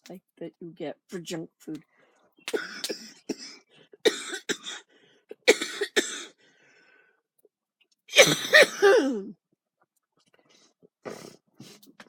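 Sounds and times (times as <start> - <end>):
woman coughing: 2.6 - 4.8, 5.4 - 6.4, 8.1 - 9.4.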